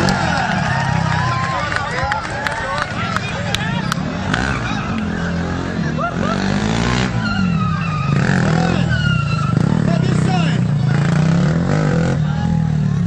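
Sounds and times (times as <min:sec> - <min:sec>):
motorcycle engine revving: 0:00.0 - 0:02.0, 0:02.8 - 0:13.0
voices calling: 0:00.0 - 0:13.0.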